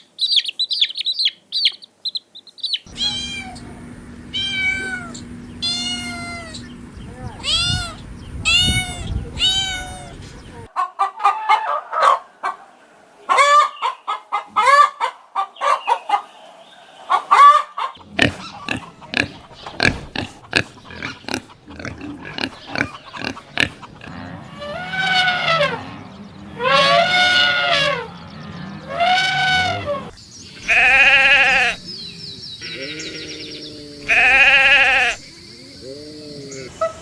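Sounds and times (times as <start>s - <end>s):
hens clucking: 2.8s - 32.0s, 32.6s - 37.0s
goat bleating: 2.9s - 6.8s, 7.4s - 10.6s, 29.0s - 31.8s, 32.6s - 35.2s.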